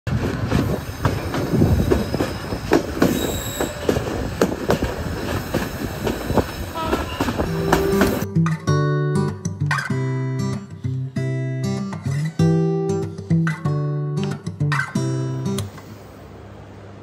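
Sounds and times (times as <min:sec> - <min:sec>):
train wheels knocking on rails: 0:00.1 - 0:08.2
train wheel squeal: 0:00.6 - 0:04.4, 0:05.2 - 0:08.2
acoustic guitar music: 0:07.4 - 0:15.8.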